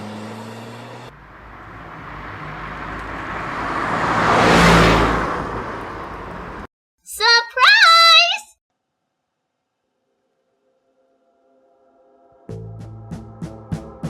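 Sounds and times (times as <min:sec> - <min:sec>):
vehicle passing by: 0:00.0 - 0:06.7.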